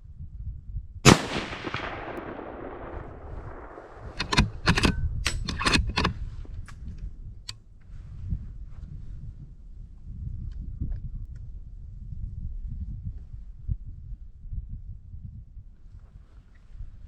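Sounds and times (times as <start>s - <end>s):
rifle shot echoing: 1.1s - 6.1s
sharp metallic clicks and knocks: 3.4s - 6.2s.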